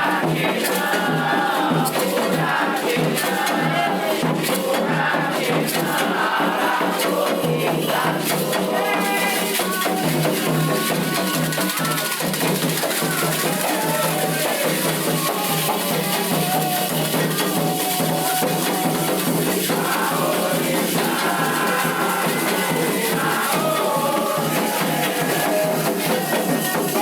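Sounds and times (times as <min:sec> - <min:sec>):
chanting: 0:00.0 - 0:27.0
rattles and drums: 0:00.0 - 0:27.0.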